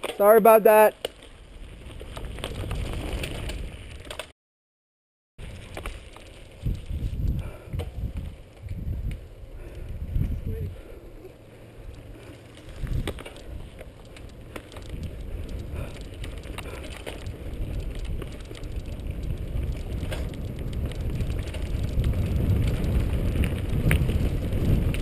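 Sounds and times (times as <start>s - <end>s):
bike tyres crackling on gravel: 0.2s - 4.3s, 5.4s - 25.0s
bike clicks and knocks: 5.4s - 7.0s, 11.8s - 25.0s
wind rumble on microphone: 5.4s - 11.2s, 11.8s - 25.0s.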